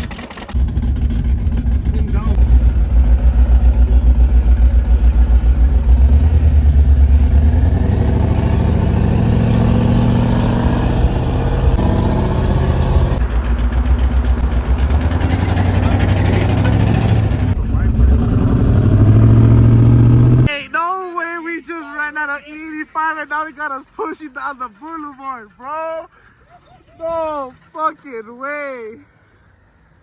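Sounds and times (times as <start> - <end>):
car engine accelerating: 0.0 - 20.5.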